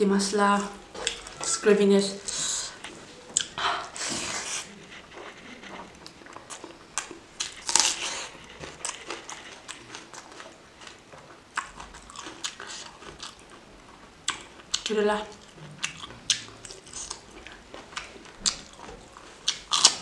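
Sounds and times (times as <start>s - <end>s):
wet chewing and smacking: 0.6s - 1.5s, 2.7s - 20.0s.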